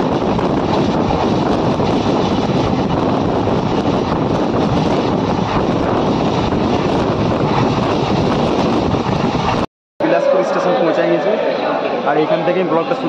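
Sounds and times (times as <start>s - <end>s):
rushing air: 0.0s - 9.7s
train rumbling: 0.0s - 10.5s.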